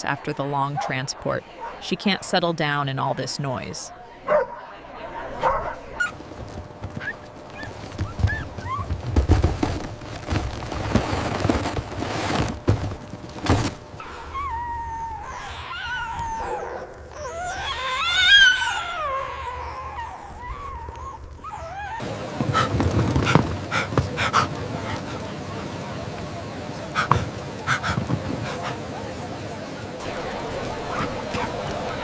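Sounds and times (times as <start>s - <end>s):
rustling and knocks: 6.1s - 14.0s
dog whining: 7.0s - 9.1s, 14.0s - 22.7s.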